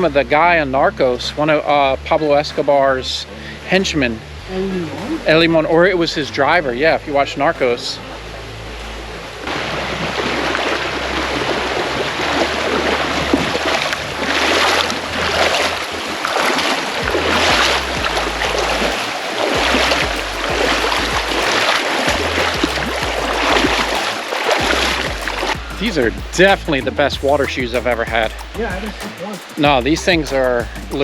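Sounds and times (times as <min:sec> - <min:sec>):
low rumble: 0:00.0 - 0:24.0, 0:24.6 - 0:29.0, 0:29.7 - 0:31.0
river water rushing: 0:00.0 - 0:31.0
splashing footsteps in water: 0:07.5 - 0:26.6.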